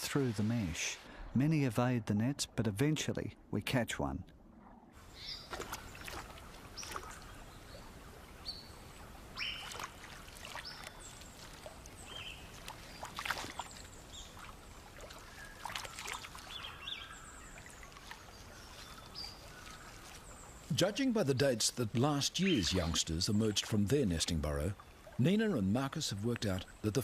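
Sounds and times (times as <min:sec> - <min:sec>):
water splashes: 0:00.0 - 0:03.1, 0:05.0 - 0:27.0
low steady hiss: 0:00.0 - 0:27.0
water trickling: 0:05.0 - 0:27.0
bird chirps and calls: 0:09.4 - 0:09.8.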